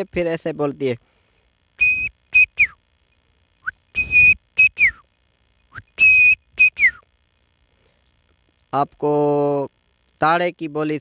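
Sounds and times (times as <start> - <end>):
breath: 1.0 - 1.6, 7.7 - 8.1
man whistling bird call: 1.8 - 2.8, 3.6 - 5.1, 5.7 - 7.1.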